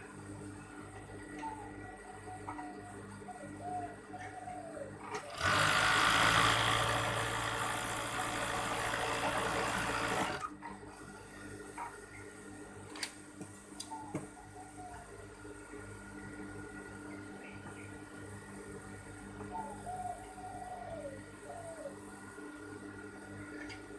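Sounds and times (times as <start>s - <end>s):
sewing machine running: 5.3s - 10.5s.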